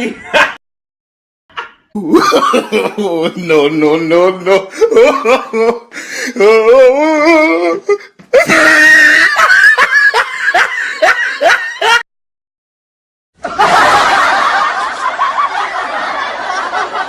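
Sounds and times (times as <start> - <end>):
many people laughing: 0.0 - 0.6, 1.6 - 3.6, 8.5 - 12.0, 13.4 - 17.0
person laughing in bursts: 1.5 - 3.5, 8.4 - 12.0.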